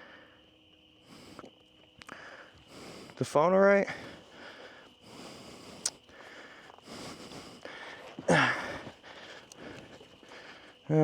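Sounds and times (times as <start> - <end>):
man breathing hard: 0.0 - 3.2, 3.8 - 11.0
man grunting: 8.3 - 8.7.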